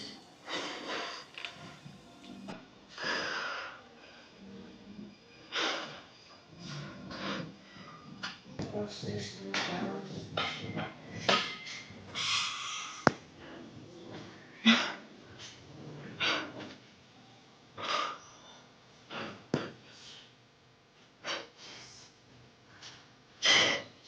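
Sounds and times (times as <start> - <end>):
heavy breathy exhalations: 0.0 - 1.9.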